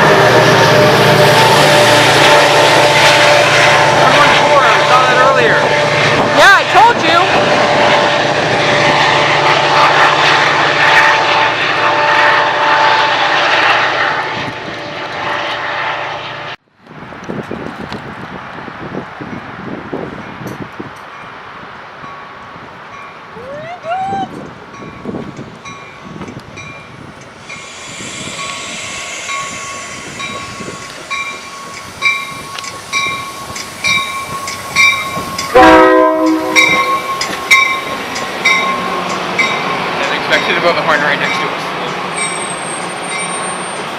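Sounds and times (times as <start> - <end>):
locomotive horn blast: 0.0 - 16.6, 34.0 - 37.6
train passing with rumble: 0.0 - 43.9
outdoor ambience: 7.9 - 40.6.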